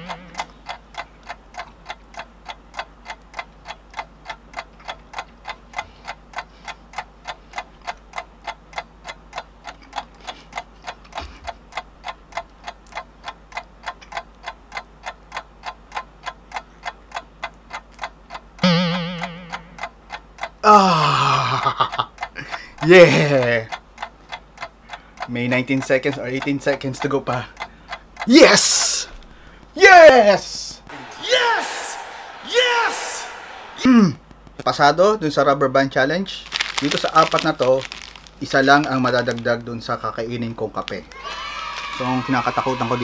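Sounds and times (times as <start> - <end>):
timer ticking: 0.0 - 35.4.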